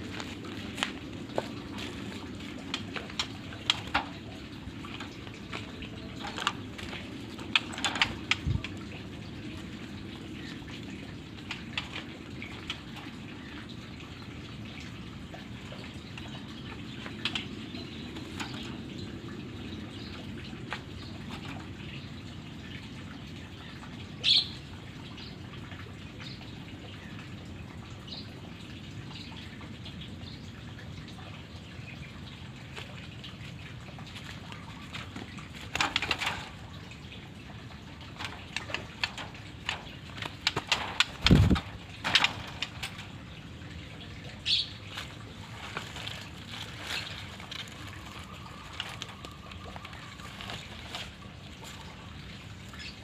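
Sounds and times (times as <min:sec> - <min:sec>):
bird wing flaps: 0:38.2 - 0:43.0.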